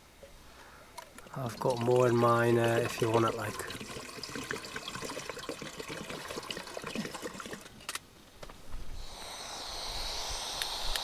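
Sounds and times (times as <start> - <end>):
steady hiss with low rumble: 0.0 - 11.0
water pouring into a pan: 1.4 - 7.7.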